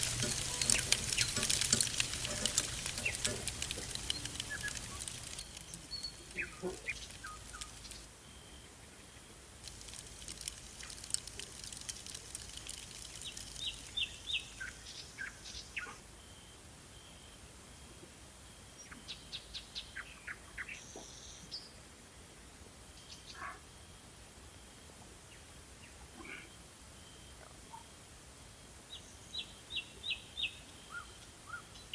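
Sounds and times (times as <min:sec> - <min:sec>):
meat crackling on grill: 0:00.0 - 0:08.1, 0:09.6 - 0:15.0
birds chirping: 0:00.0 - 0:08.5, 0:09.6 - 0:15.9.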